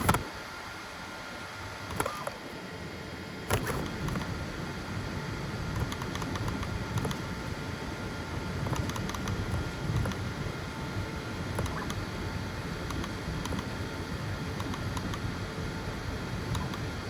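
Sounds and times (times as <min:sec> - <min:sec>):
printer motors and fan humming: 0:00.0 - 0:17.0
sharp clicks: 0:05.7 - 0:07.2, 0:08.6 - 0:10.3, 0:11.5 - 0:12.0, 0:12.8 - 0:13.8, 0:14.6 - 0:15.3, 0:16.5 - 0:16.9
print head quick ticks: 0:11.6 - 0:12.0.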